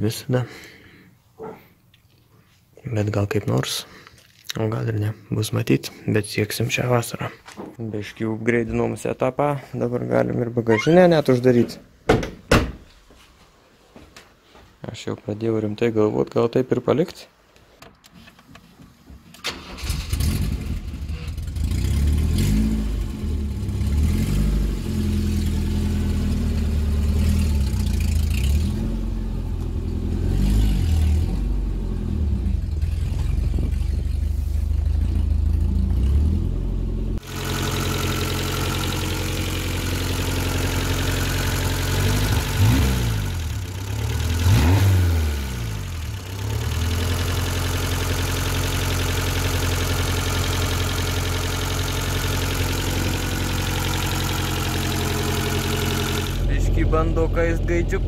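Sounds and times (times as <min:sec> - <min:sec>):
car engine starting and idling: 0:19.3 - 0:58.0.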